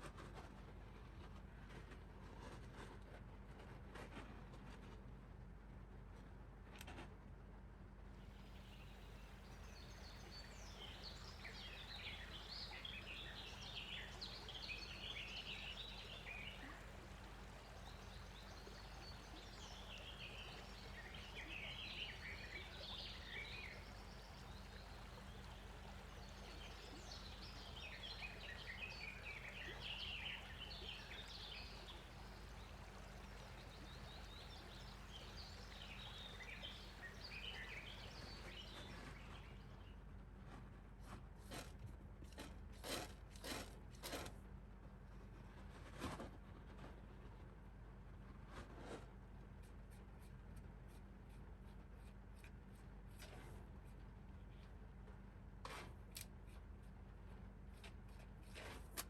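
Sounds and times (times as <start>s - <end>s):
faint birds chirping: 8.2s - 40.0s
steady low hiss: 8.3s - 39.5s.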